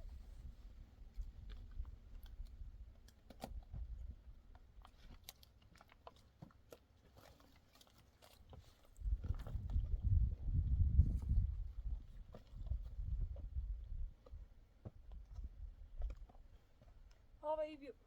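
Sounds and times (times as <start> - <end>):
small crunching clicks: 4.5 - 9.0.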